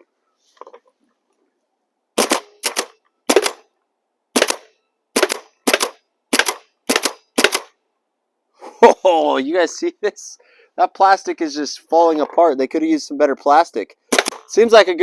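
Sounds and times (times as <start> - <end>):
paintball gun shots: 2.2 - 3.7, 4.3 - 7.8, 14.1 - 14.6.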